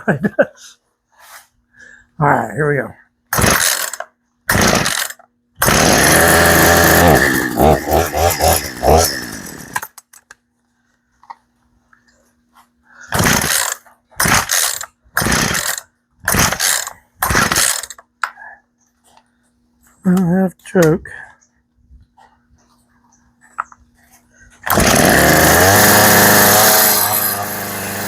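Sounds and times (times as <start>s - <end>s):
starter cord rasping pull: 3.3s - 10.2s, 13.1s - 18.0s, 24.6s - 28.0s
chainsaw engine running and sputtering: 3.4s - 9.9s, 13.1s - 17.9s, 24.6s - 28.0s.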